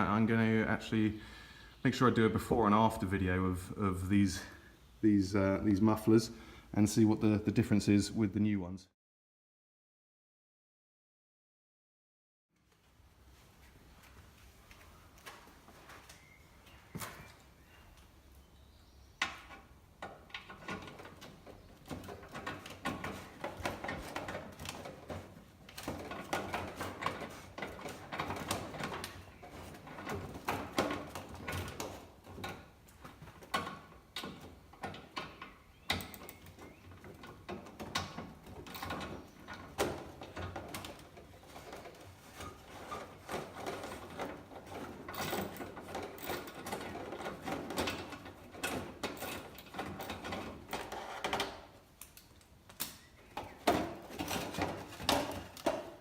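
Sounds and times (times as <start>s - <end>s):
hand tools clicking and clattering: 19.2s - 56.0s.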